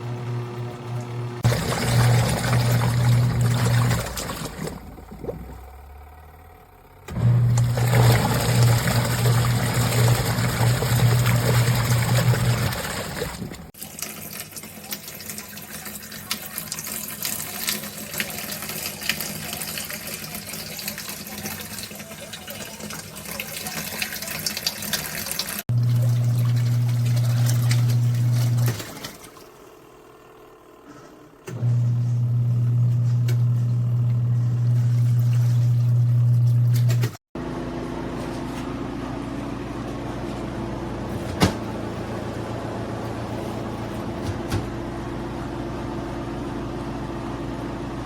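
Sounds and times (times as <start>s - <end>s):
washing machine motor hum: 0.0s - 48.0s
water sloshing in tub: 1.4s - 5.8s, 7.4s - 30.0s, 34.6s - 37.2s.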